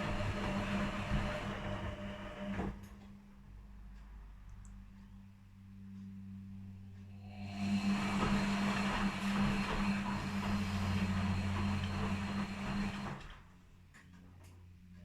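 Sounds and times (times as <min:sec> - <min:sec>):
washing machine drum churning: 0:00.0 - 0:03.0, 0:07.2 - 0:13.5
washing machine motor hum: 0:00.0 - 0:03.2, 0:07.0 - 0:13.6.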